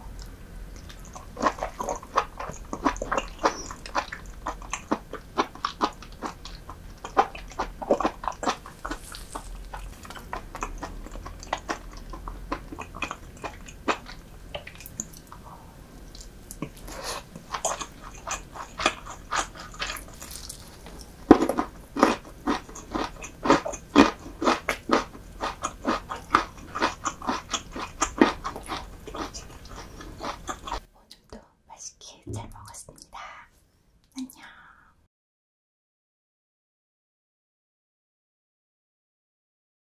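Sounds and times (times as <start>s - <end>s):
wet chewing clicks and crunches: 0.1s - 15.4s, 16.1s - 30.9s.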